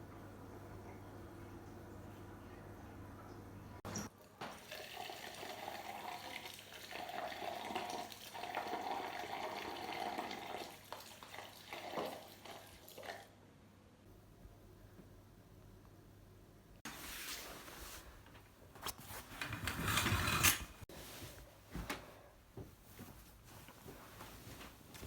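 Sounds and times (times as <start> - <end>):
low steady hum: 0.0 - 4.1.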